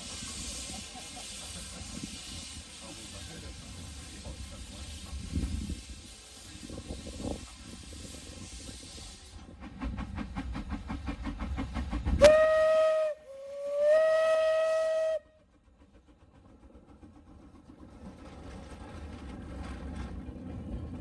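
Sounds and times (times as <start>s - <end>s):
steam hissing: 0.0s - 18.0s
steam whistle blasts: 12.2s - 15.4s.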